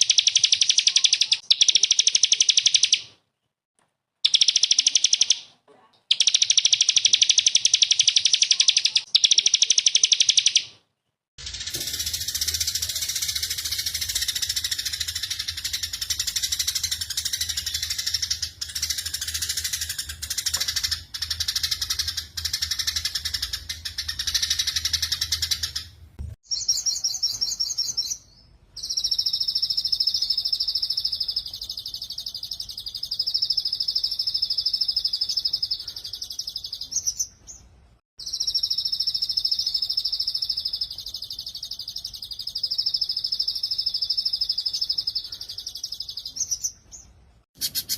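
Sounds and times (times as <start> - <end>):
songbird trills: 0.0 - 3.1, 26.5 - 37.6, 38.2 - 47.9.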